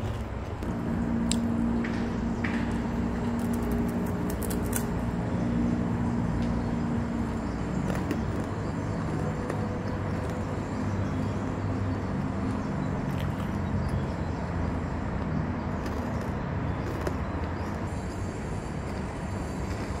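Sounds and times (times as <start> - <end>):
steady low drone: 0.0 - 20.0
crunching bites of crisp bar: 15.2 - 17.9.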